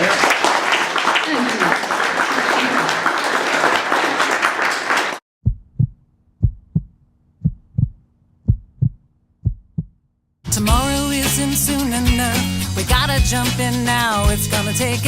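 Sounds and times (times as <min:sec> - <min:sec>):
applause: 0:00.0 - 0:05.2
heartbeat thumps: 0:05.4 - 0:10.0.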